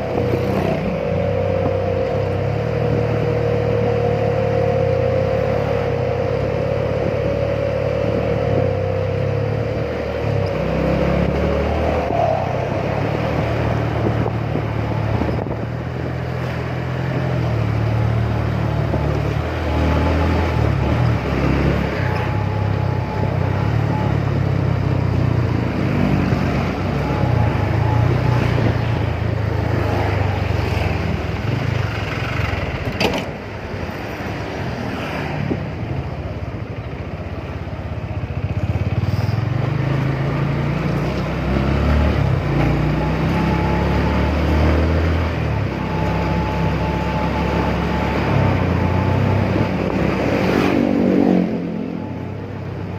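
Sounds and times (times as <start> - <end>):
road and wind noise: 0.0 - 52.9
motorcycle engine running: 35.9 - 41.1.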